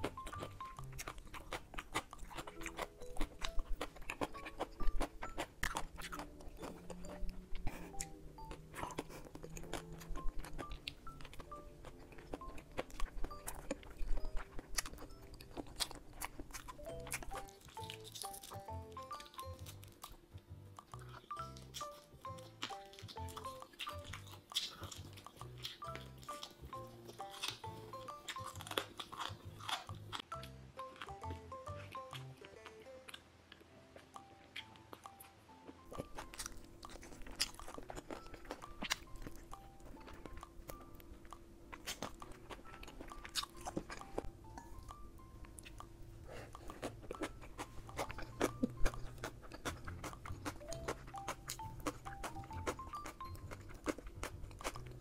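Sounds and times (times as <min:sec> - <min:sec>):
soft plinking background music: 0:00.0 - 0:55.0
wet chewing clicks: 0:00.0 - 0:55.0.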